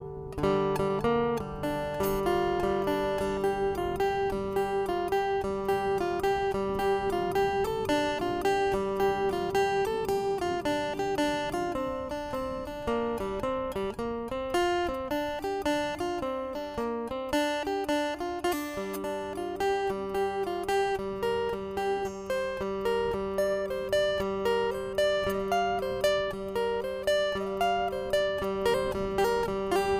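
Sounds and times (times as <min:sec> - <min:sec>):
acoustic guitar picking: 0:00.0 - 0:29.9.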